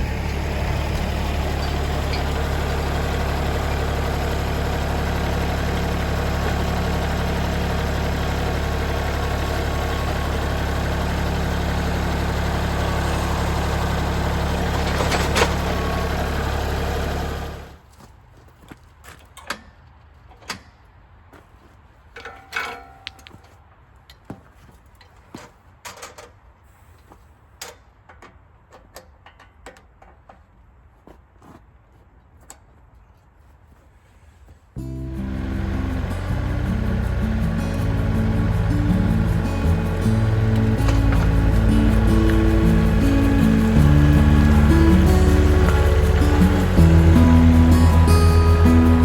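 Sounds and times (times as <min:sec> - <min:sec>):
engine idling: 0:00.0 - 0:17.8, 0:34.8 - 0:49.0.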